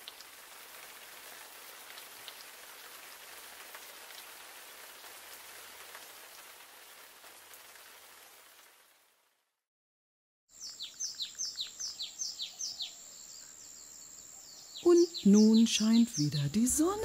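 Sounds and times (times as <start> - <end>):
rain drop ticks: 0.0 - 0.3, 1.8 - 2.9
steady rain hiss: 0.0 - 9.6, 10.6 - 17.0.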